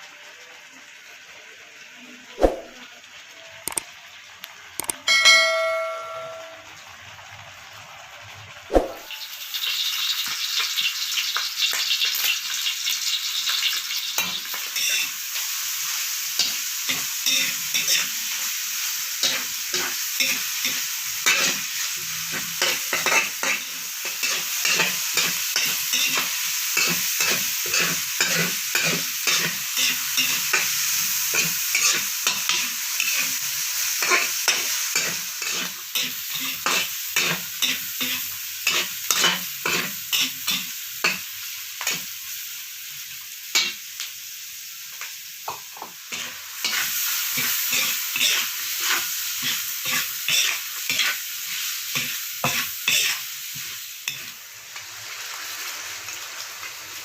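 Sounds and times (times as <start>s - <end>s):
food frying in hot oil: 0.0s - 57.0s
short chime: 5.1s - 6.7s.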